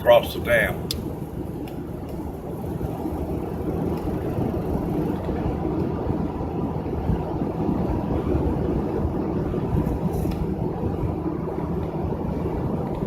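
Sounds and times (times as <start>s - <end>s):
tyre and engine rumble in car: 0.0s - 13.0s.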